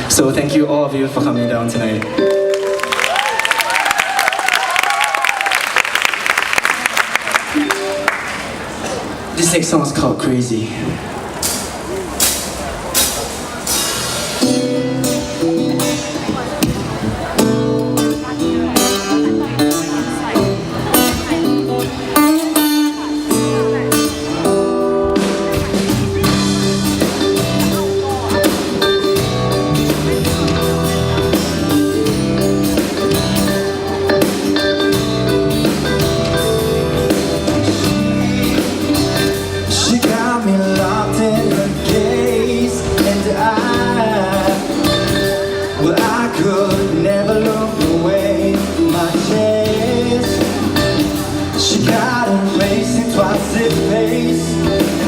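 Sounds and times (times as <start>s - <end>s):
pop-rock band playing: 0.0s - 5.0s, 7.2s - 9.3s, 11.4s - 55.0s
person singing: 37.6s - 55.0s.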